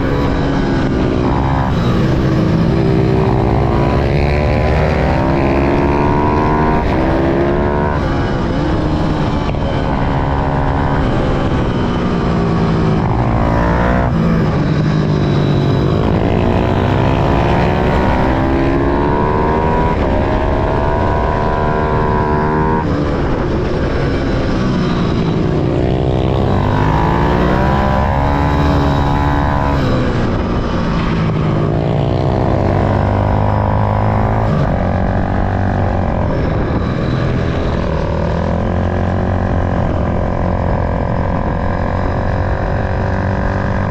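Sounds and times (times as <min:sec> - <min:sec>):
small motorcycle engines revving: 0:00.0 - 0:43.9.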